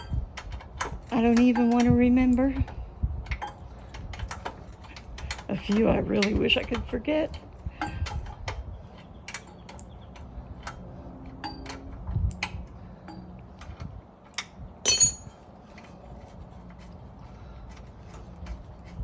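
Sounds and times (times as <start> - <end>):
hand tools clicking on metal: 14.9 - 15.3
ringing metal clink: 14.9 - 15.4.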